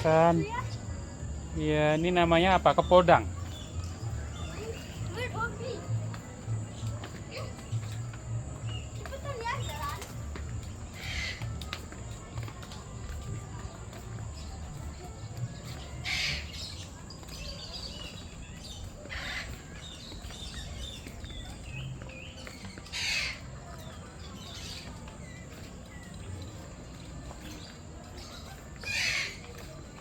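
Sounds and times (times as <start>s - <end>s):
small birds chirping: 0.0s - 30.0s
harsh bird squawks: 22.9s - 23.5s, 28.8s - 29.5s.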